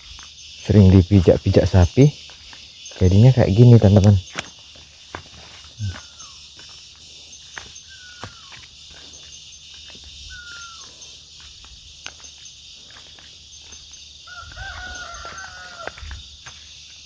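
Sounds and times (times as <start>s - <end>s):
footstep crunches: 0.0s - 17.0s
insect drone: 0.0s - 17.0s
rooster crowing: 14.2s - 16.3s.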